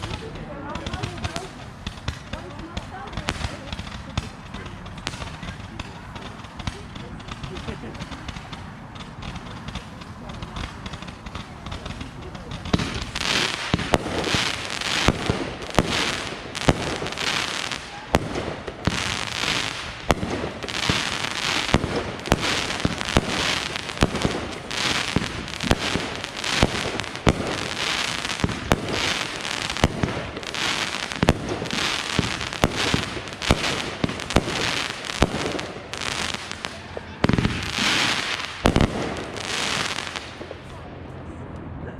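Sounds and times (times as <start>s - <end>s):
fireworks bangs: 0.0s - 40.9s
fireworks crackling and hissing: 0.0s - 41.2s.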